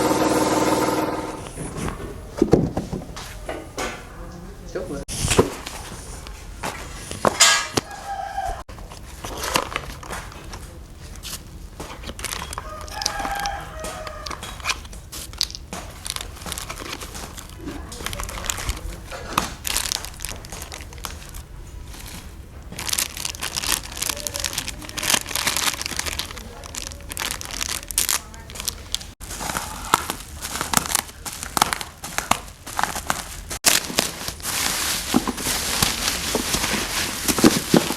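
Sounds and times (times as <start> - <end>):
scraping and crinkling: 5.1 - 37.9
rooster crowing: 7.6 - 8.7, 12.6 - 14.6.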